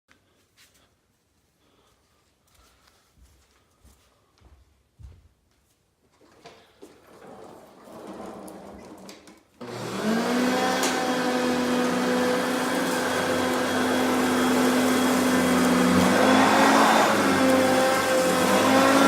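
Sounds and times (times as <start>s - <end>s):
vacuum cleaner motor running: 7.1s - 19.0s.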